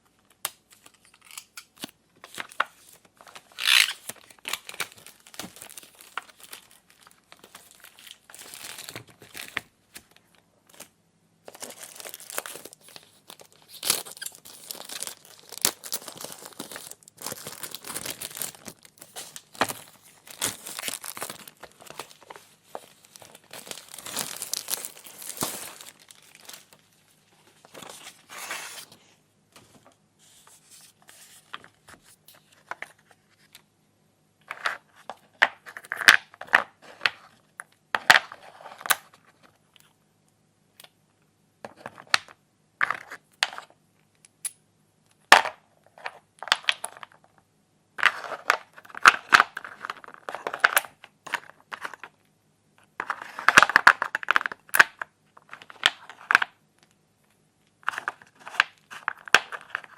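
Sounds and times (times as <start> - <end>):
packaging crinkling and tearing: 0.7 - 10.9, 11.5 - 28.9.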